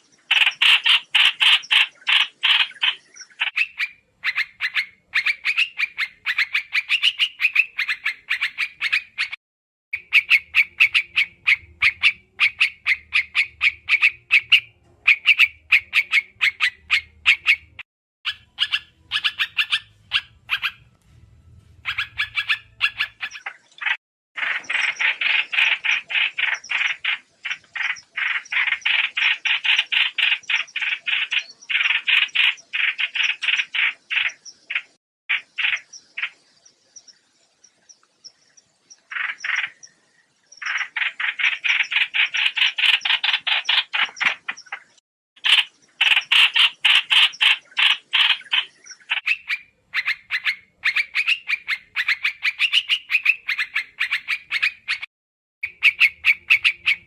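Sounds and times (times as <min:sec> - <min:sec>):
bird chattering calls: 0:00.0 - 0:09.4, 0:10.0 - 0:20.9, 0:21.8 - 0:36.4, 0:38.9 - 0:40.0, 0:40.6 - 0:57.0
faint low hum: 0:18.9 - 0:23.1.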